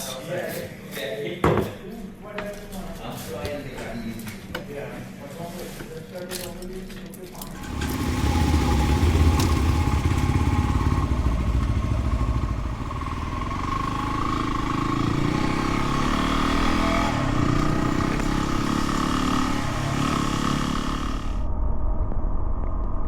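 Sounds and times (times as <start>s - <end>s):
dirt bike engine revving: 7.5s - 21.5s.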